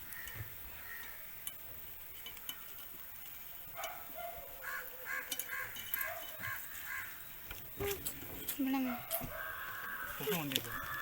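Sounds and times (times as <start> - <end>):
bird calling: 4.2 - 11.0.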